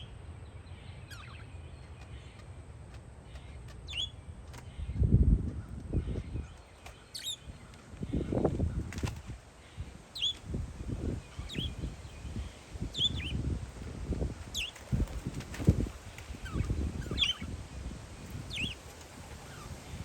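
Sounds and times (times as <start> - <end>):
parakeets chirping: 0.8 - 2.4, 3.3 - 4.9, 6.0 - 8.9, 9.6 - 10.4, 11.3 - 17.6, 18.2 - 20.0
wind buffeting microphone: 3.9 - 20.0.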